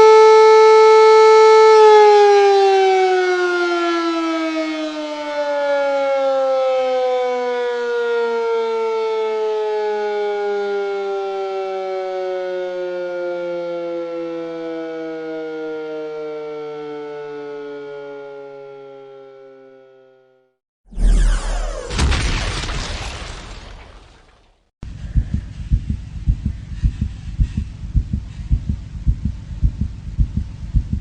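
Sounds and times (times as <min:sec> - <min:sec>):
air raid siren winding down: 0:00.0 - 0:22.4.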